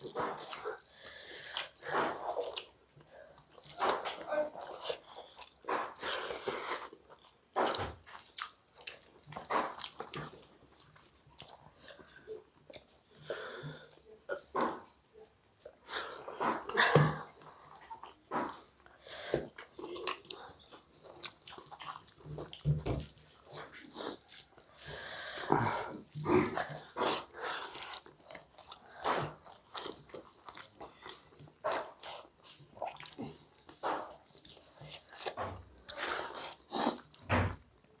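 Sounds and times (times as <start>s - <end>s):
people chewing and lip-smacking: 0.0s - 38.0s.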